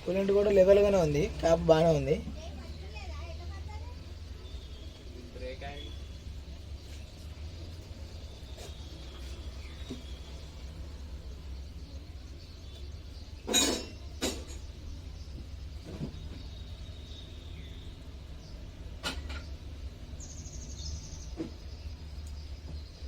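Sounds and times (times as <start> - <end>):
bird chirp: 0.0 - 23.0
steady low hum: 0.0 - 23.0.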